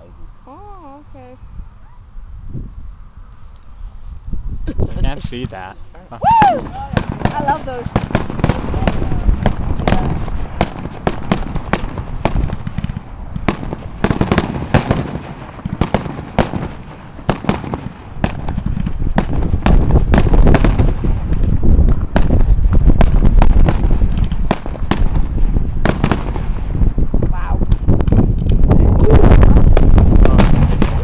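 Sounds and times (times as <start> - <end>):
fireworks bangs and crackling: 5.0 - 31.0
rumble of booms: 6.4 - 31.0.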